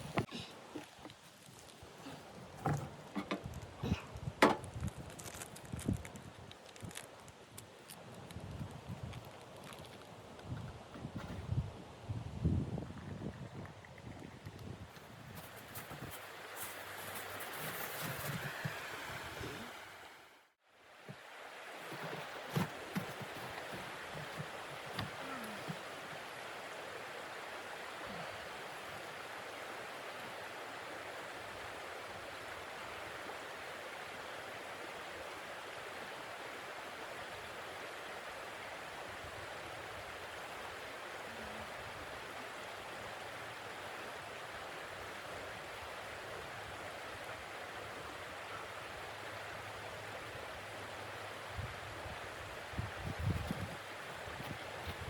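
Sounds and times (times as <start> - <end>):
wind blowing: 0.0 - 20.3, 51.5 - 55.0.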